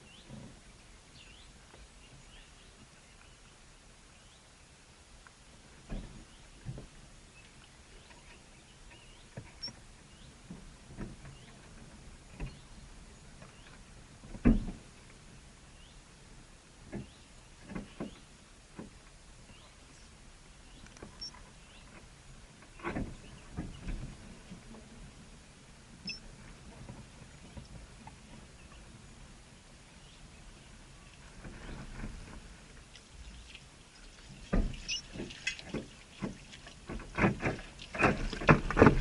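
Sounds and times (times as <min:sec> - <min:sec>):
knocks and scrapes: 0:21.8 - 0:24.9, 0:31.2 - 0:33.4, 0:34.1 - 0:39.0.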